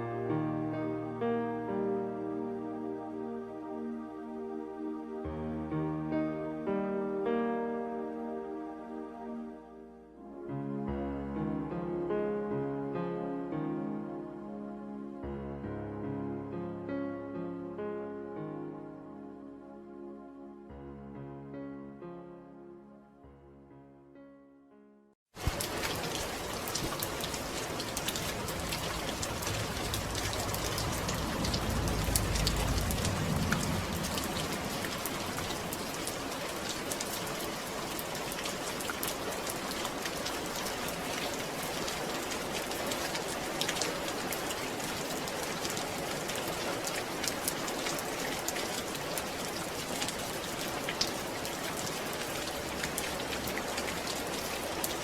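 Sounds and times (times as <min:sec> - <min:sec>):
raindrops ticking on surface: 0:25.4 - 0:55.0
steady rain falling: 0:25.4 - 0:55.0
low rumble: 0:29.3 - 0:35.3.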